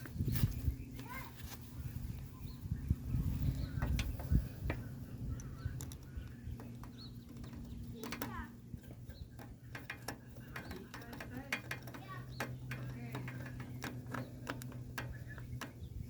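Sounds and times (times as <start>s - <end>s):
birds chirping: 0.0s - 16.0s
steady low hum: 0.0s - 16.0s
sharp clicks and taps: 3.8s - 15.9s.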